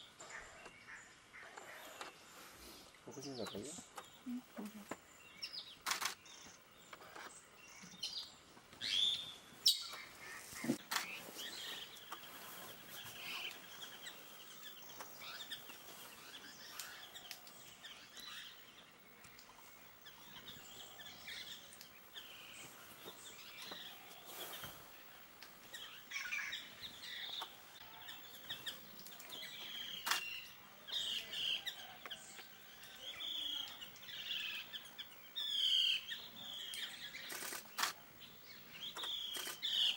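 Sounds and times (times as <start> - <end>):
forest birds chirping: 0.0 - 39.9
sharp clicks: 5.8 - 6.2, 36.7 - 38.0.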